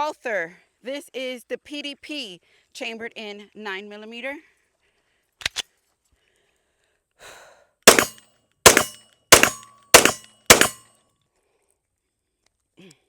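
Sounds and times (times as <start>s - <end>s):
pistol shots: 7.9s - 10.8s.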